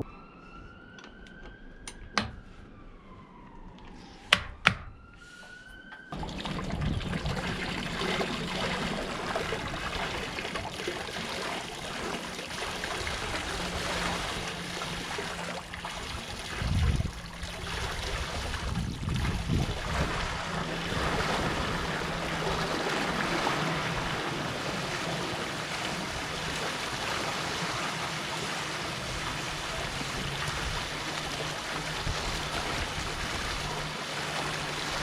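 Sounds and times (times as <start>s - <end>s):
water pouring over an edge: 6.1s - 35.0s
wind buffeting microphone: 6.2s - 10.7s, 16.1s - 25.0s, 29.0s - 33.8s.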